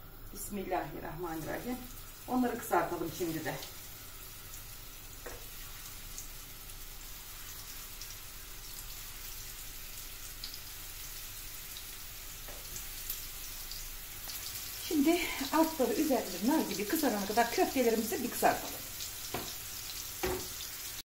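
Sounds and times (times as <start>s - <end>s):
meatballs sizzling in oil: 0.0s - 21.0s.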